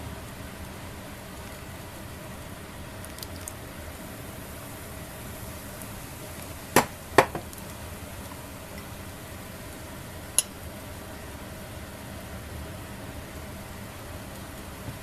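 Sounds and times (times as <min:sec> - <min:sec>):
hard objects knocking: 0:06.8 - 0:07.5.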